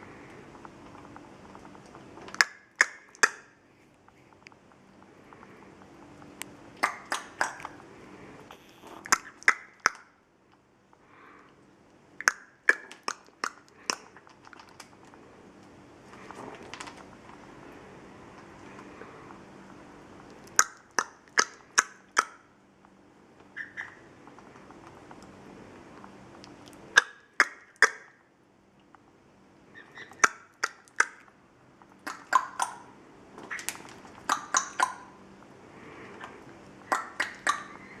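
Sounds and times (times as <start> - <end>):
parrot chewing crunch: 0.0 - 22.2
parrot beak clicking: 6.4 - 7.8, 9.0 - 10.1, 12.2 - 14.2, 33.5 - 35.1, 36.2 - 37.9.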